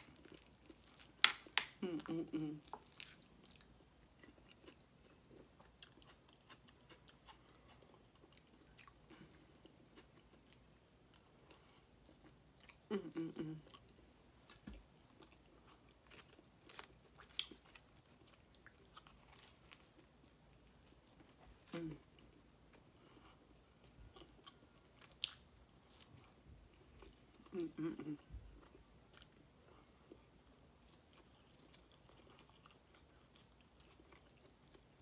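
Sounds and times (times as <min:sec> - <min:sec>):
faint chewing and mouth clicks: 0:00.0 - 0:35.0
person humming: 0:01.8 - 0:02.7, 0:12.9 - 0:13.7, 0:21.7 - 0:22.0, 0:27.5 - 0:28.3.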